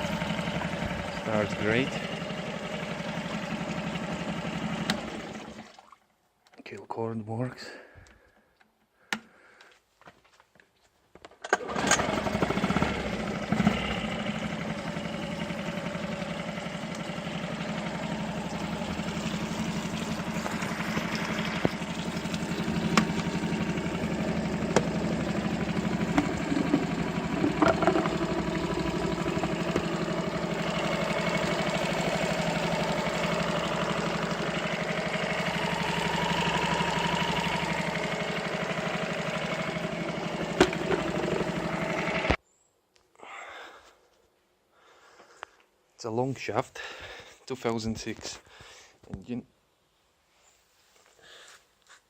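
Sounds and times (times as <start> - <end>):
outboard engine running: 0.0 - 5.8, 11.6 - 42.4.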